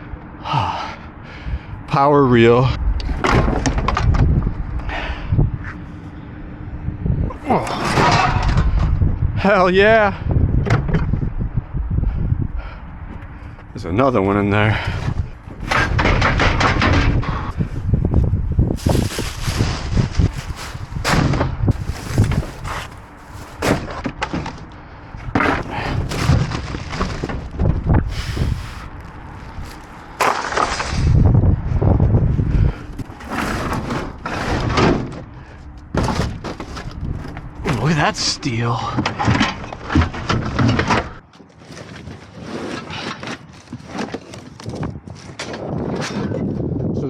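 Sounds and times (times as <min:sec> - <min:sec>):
junk thumping and clanking: 0:02.7 - 0:41.3
scrap scraping in a dumpster: 0:07.0 - 0:09.1, 0:14.3 - 0:46.4.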